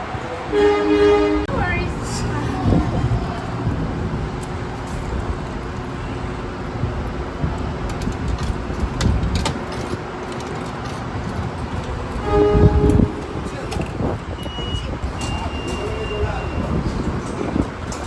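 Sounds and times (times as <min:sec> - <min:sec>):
street traffic passing: 0:00.0 - 0:18.0.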